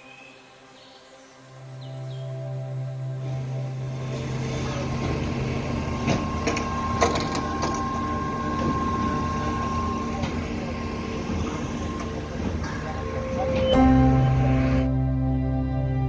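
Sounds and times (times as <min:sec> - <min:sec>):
power trowel engine running: 0:03.2 - 0:15.2.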